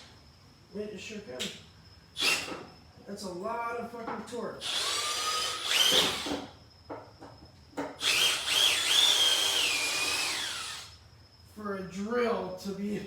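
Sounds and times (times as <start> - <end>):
drill whining: 2.2 - 2.6, 4.6 - 6.5, 8.0 - 11.0
drill clicks: 4.6 - 6.4, 8.0 - 10.9.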